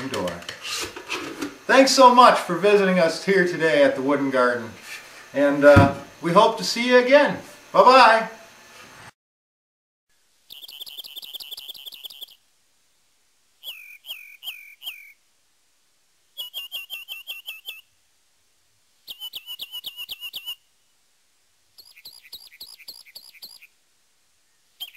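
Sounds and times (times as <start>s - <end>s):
bird chirping phrases: 10.5s - 12.4s, 13.6s - 15.2s, 16.4s - 17.8s, 19.1s - 20.6s, 21.8s - 23.7s, 24.5s - 24.9s
bird down-slurred whistles: 10.5s - 12.4s, 13.6s - 15.2s, 16.4s - 17.9s, 19.1s - 20.6s, 21.8s - 23.7s.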